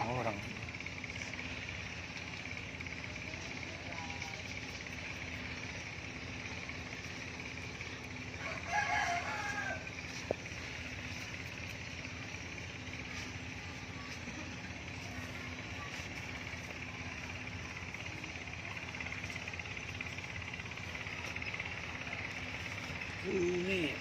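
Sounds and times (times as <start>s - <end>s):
high-pitched background hum: 0.0s - 24.0s
rooster crowing: 8.3s - 10.4s.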